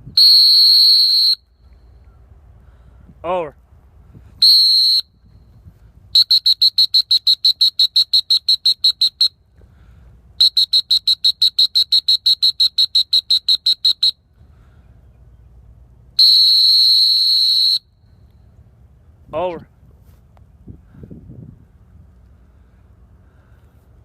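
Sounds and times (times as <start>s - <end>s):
dog training whistle blasts: 0.1s - 1.8s, 4.4s - 5.2s, 6.1s - 9.4s, 10.4s - 14.2s, 16.2s - 18.0s.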